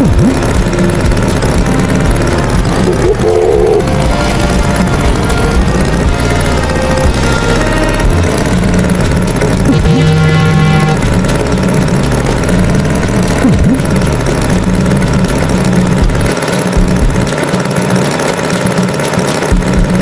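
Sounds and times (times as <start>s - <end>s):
cartoon tractor engine rumble: 0.0s - 20.0s
short tone: 2.8s - 8.7s, 9.4s - 11.5s.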